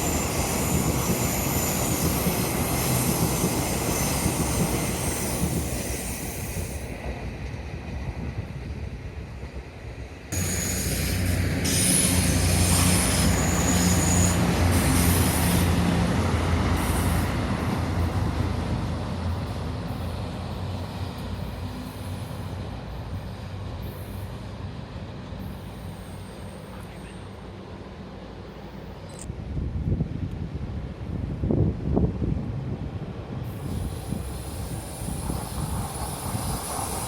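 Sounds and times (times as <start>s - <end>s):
wheels squealing against rails: 0.0s - 7.0s, 10.4s - 18.6s, 19.3s - 24.5s, 25.4s - 27.4s, 33.5s - 37.0s
diesel railcar engine drone: 0.0s - 37.0s.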